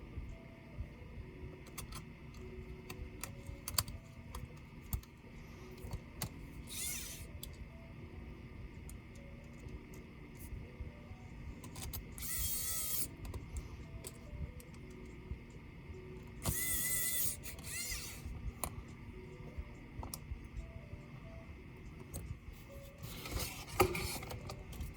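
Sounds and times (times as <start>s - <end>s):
quiet background music: 0.0s - 24.9s
electric screwdriver whirring: 6.6s - 7.3s, 12.1s - 13.2s, 16.4s - 18.3s.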